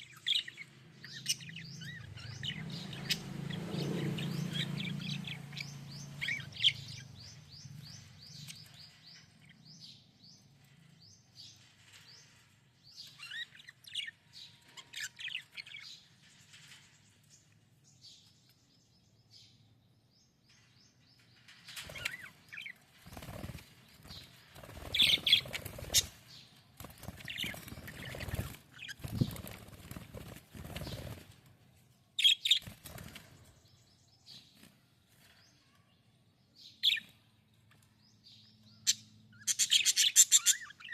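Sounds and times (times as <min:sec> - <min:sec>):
wing flapping: 0:22.9 - 0:31.5.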